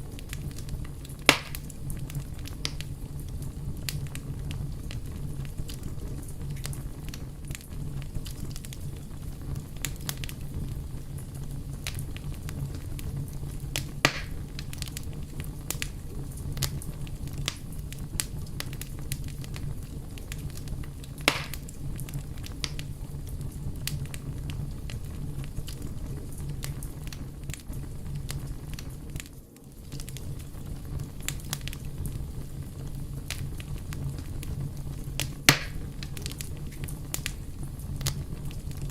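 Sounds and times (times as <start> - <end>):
fire crackling: 0.0 - 38.9
loud pops from fire: 0.0 - 38.9.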